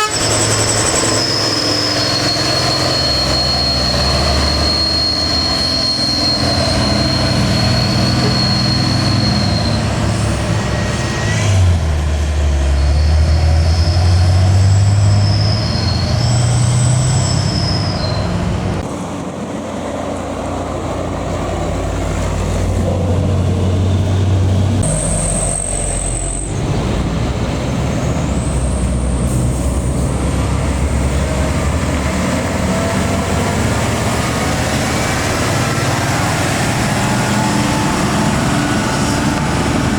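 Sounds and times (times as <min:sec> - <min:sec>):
heavy diesel trucks labouring uphill: 0:00.0 - 0:39.9.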